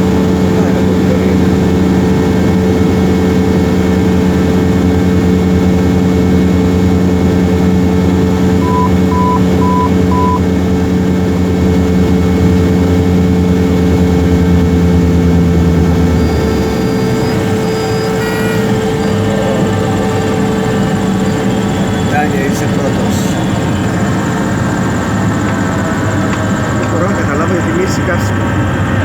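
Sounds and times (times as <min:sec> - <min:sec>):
airplane engine and propeller: 0:00.0 - 0:29.0
short high beeps: 0:08.6 - 0:10.4, 0:18.0 - 0:18.8.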